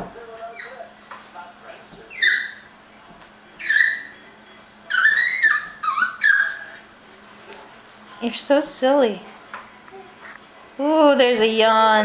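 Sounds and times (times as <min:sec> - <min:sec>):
baby squealing yelps: 0:02.1 - 0:02.6, 0:03.6 - 0:04.1, 0:04.9 - 0:06.8.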